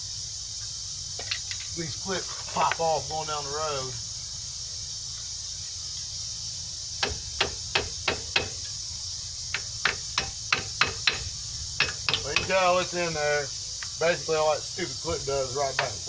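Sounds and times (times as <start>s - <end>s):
hammer tapping metal: 9.6s - 12.5s.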